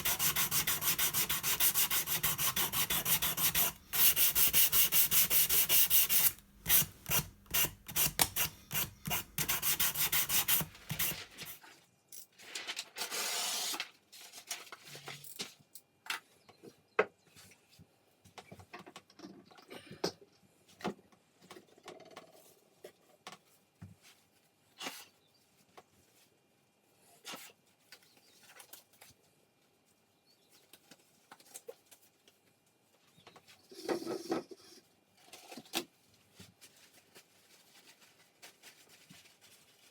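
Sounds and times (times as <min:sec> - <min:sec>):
sandpaper rubbing on wood: 0:00.0 - 0:11.5.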